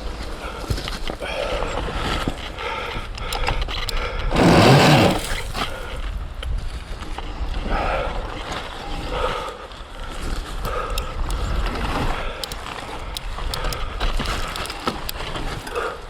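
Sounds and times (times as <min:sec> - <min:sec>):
electric motor whine: 0:04.3 - 0:05.6.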